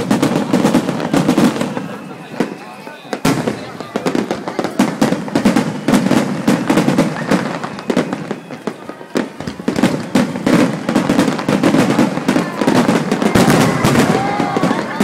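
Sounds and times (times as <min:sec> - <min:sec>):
firework crackles: 0:00.0 - 0:15.0
fireworks bursting: 0:00.0 - 0:15.0.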